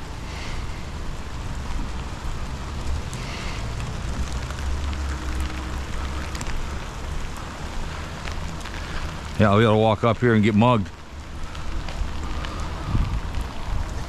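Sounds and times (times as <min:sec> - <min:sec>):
rain falling: 0:00.0 - 0:14.0
low rumble: 0:10.4 - 0:14.0.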